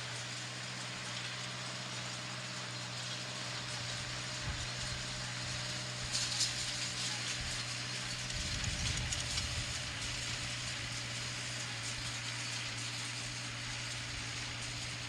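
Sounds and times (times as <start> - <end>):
tractor engine running: 0.0 - 15.0
farm machinery rattling: 0.1 - 15.0.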